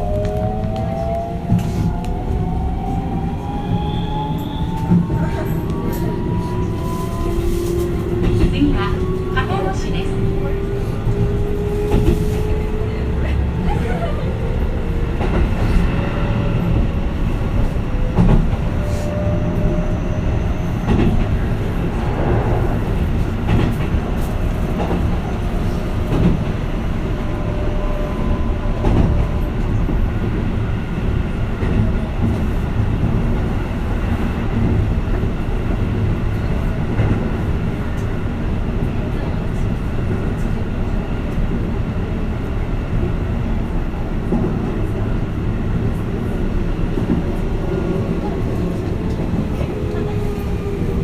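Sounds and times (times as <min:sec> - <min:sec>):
train wheels rumbling on track: 0:00.0 - 0:51.0.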